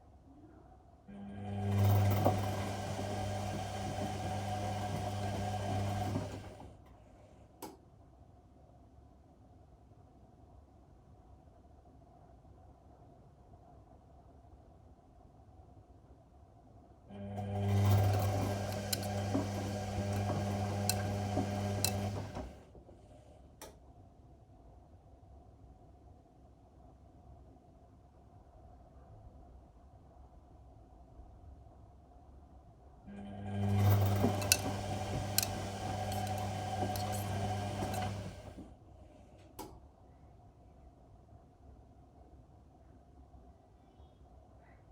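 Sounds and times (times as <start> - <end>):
washing machine drum turning: 17.5 - 22.6, 33.5 - 38.6.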